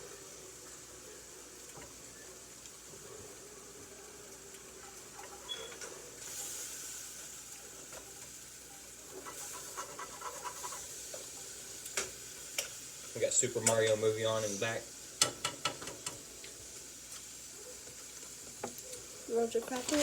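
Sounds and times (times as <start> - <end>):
butter sizzling in a frying pan: 0.0 - 20.0.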